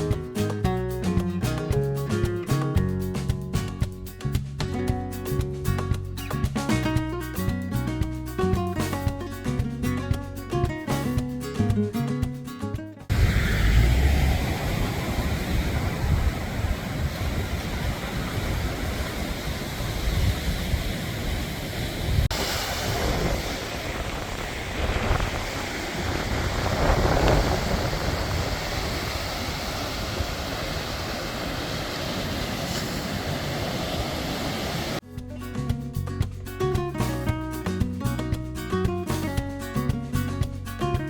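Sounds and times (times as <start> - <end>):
sea waves rushing: 13.1 - 35.0
wind buffeting microphone: 13.1 - 35.0.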